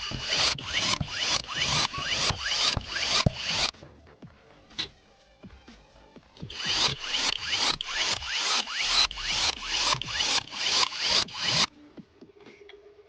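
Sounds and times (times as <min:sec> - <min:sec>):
quick rasping strokes: 0:00.0 - 0:03.7, 0:06.5 - 0:11.7.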